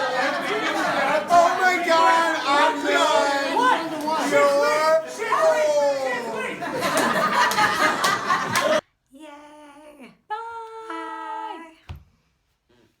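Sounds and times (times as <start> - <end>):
party chatter: 0.0 - 8.8.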